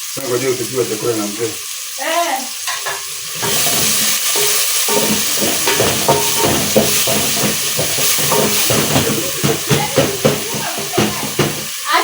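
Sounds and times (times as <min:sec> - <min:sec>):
food sizzling in a pot: 0:00.0 - 0:12.0
stirring and scraping: 0:02.7 - 0:11.8.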